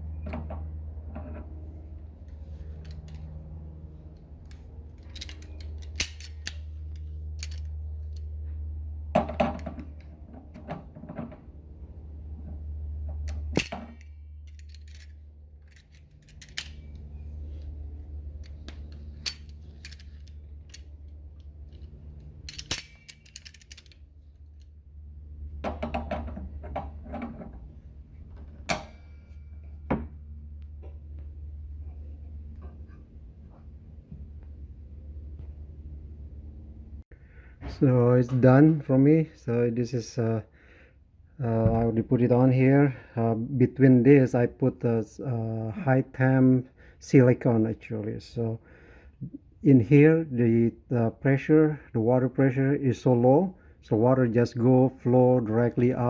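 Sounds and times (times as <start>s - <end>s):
low steady hum: 0.0s - 56.0s
metal tools clinking and rattling: 4.4s - 8.3s, 13.2s - 17.2s, 18.4s - 21.0s, 21.6s - 24.7s.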